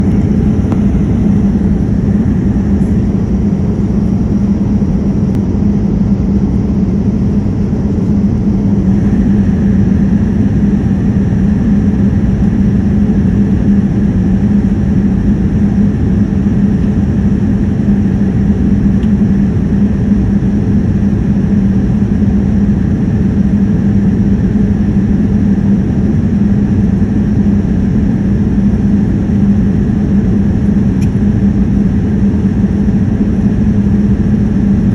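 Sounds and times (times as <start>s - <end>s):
airplane cabin engine drone: 0.0s - 34.9s.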